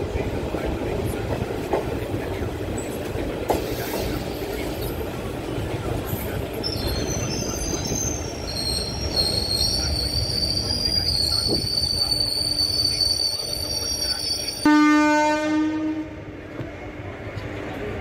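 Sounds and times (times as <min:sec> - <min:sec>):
train wheels rumbling on rail: 0:00.0 - 0:14.7, 0:15.7 - 0:18.0
high-pitched wheel squeal: 0:06.7 - 0:14.7
train horn: 0:14.6 - 0:16.3.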